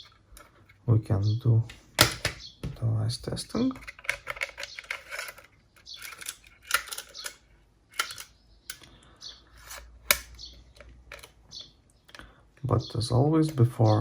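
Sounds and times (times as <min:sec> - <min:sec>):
small plastic objects clicking: 0:03.7 - 0:09.0.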